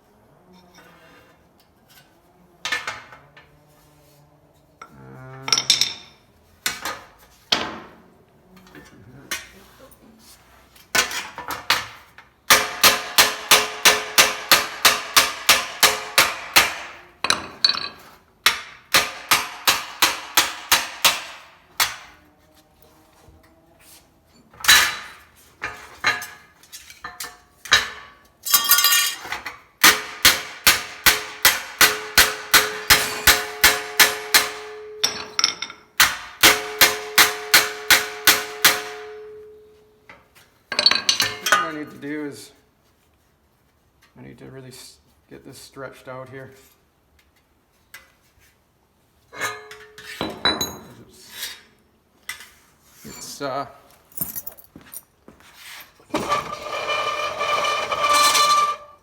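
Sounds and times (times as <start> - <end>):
hammer striking sheet steel: 12.5 - 17.0, 18.5 - 22.1, 29.8 - 35.4, 36.0 - 39.6.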